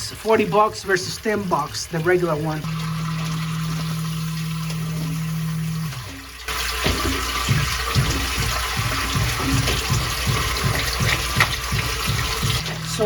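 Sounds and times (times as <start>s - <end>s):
check valve banging: 0.0s - 13.0s
sump pump motor humming: 0.0s - 13.0s
water rushing in pipe: 0.0s - 13.0s.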